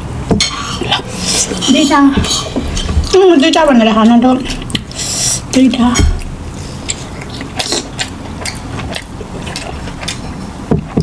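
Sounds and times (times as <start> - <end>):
chewing with mouth clicks: 6.2 - 11.0.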